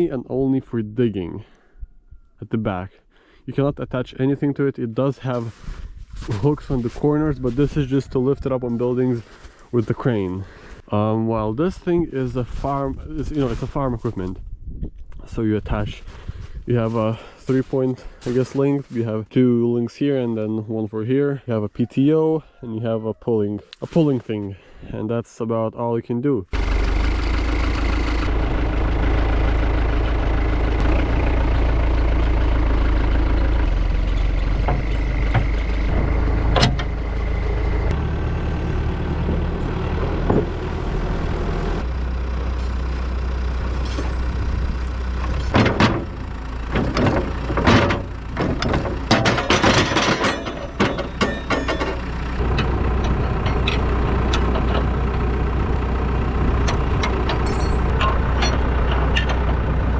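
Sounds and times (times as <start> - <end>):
diesel engine running: 6.2 - 14.4, 26.5 - 59.9
irregular clattering and crackling: 44.9 - 59.8.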